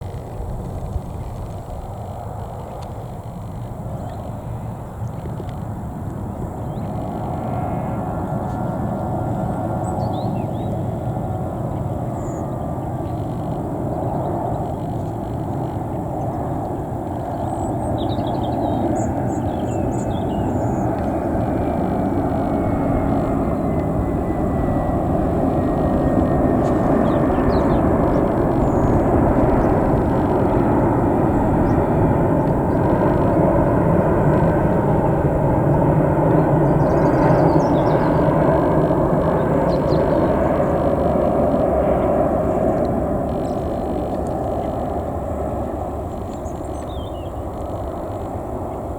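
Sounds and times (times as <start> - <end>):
jet engines roaring: 0.0 - 48.9
faint falling whine: 10.2 - 48.7.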